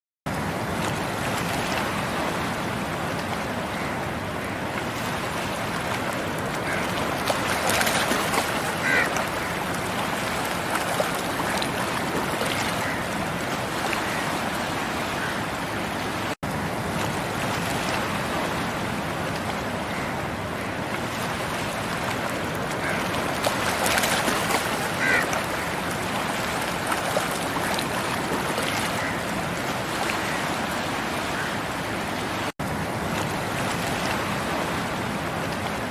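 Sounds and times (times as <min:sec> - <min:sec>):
sea waves breaking on beach: 0:00.3 - 0:35.9.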